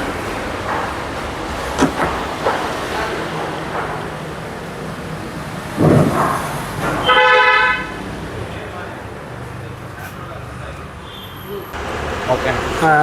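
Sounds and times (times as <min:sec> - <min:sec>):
road traffic: 0:00.0 - 0:13.0
wind on microphone: 0:05.6 - 0:06.9.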